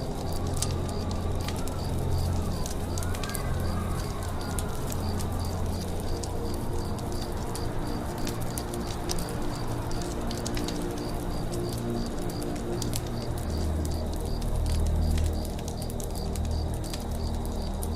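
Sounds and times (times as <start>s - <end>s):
campfire crackling: 0.0s - 17.9s.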